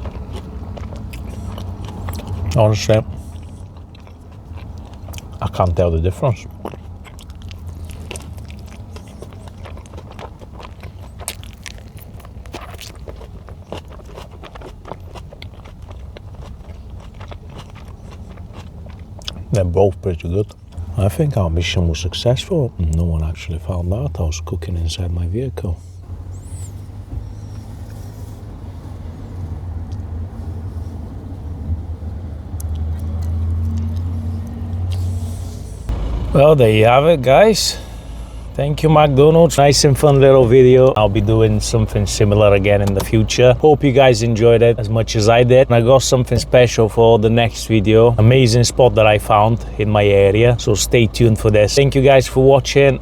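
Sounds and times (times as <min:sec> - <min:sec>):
person chewing food: 0:00.0 - 0:19.5, 0:20.2 - 0:20.9, 0:32.4 - 0:35.9
mouth noises and clicks: 0:00.0 - 0:20.9, 0:32.5 - 0:35.2, 0:42.6 - 0:43.3
steady low hum: 0:00.0 - 0:53.0
vehicle engine rumbling: 0:00.0 - 0:53.0.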